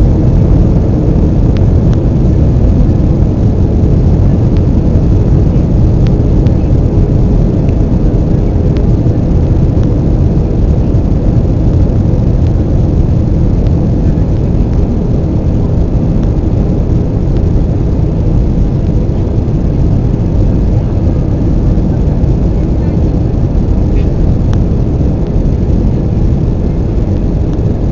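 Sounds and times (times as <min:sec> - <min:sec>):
faint steady hum: 0:00.0 - 0:27.9
jet engines and rushing air: 0:00.0 - 0:27.9.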